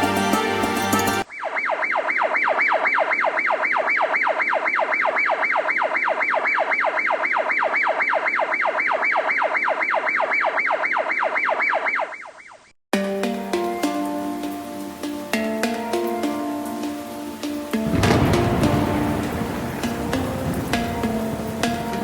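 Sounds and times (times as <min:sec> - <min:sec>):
emergency siren yelping: 0:01.2 - 0:12.7, 0:16.2 - 0:22.0.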